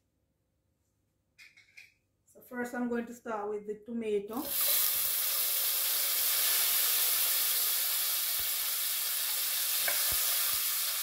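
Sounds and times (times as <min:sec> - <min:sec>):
tomatoes sizzling in hot oil: 0:04.4 - 0:11.0.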